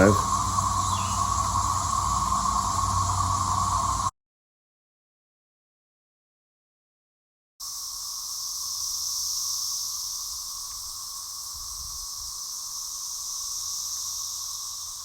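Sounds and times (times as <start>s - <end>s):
cicadas chorus: 0.0s - 4.1s, 7.6s - 15.0s.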